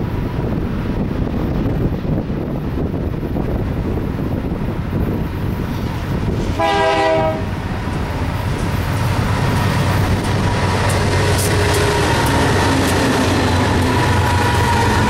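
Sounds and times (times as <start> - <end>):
diesel locomotives rumbling: 0.0 - 15.0
locomotive air horn blast: 6.5 - 7.6.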